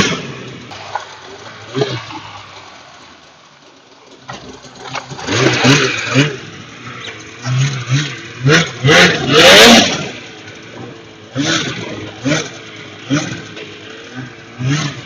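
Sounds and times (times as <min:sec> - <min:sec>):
engine revving in short bursts: 0:04.2 - 0:15.0.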